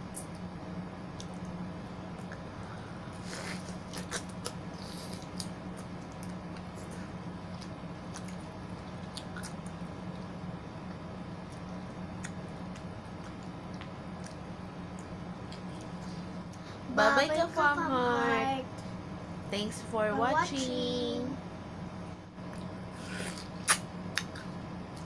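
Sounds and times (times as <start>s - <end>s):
steady low hum: 0.0s - 25.0s
wet chewing of juicy fruit: 7.4s - 16.1s
mouth clicks and smacks: 23.3s - 25.0s.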